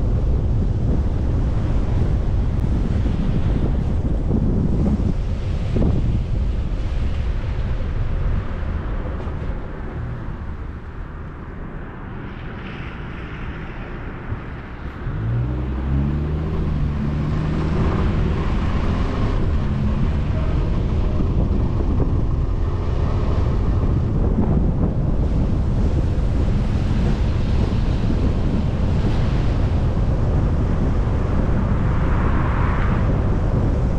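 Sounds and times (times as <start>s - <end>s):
tyre and road noise: 0.0s - 33.9s
vehicle engine accelerating: 12.4s - 33.9s.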